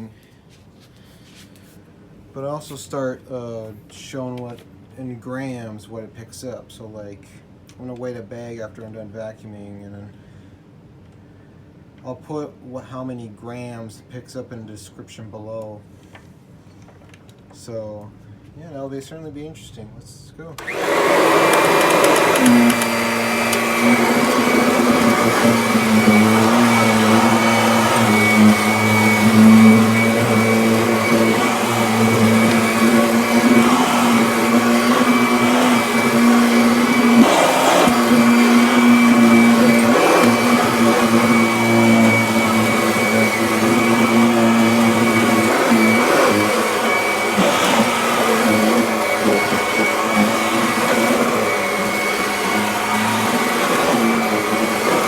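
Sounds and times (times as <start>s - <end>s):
vacuum cleaner running on carpet: 20.6s - 55.0s.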